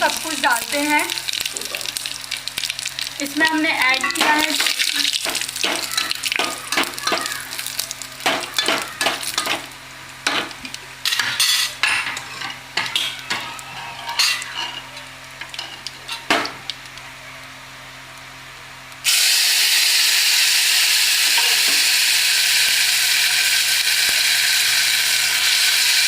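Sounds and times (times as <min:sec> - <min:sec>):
spices sizzling in hot oil: 0:00.0 - 0:26.0
spoon scraping a pan: 0:11.1 - 0:15.0.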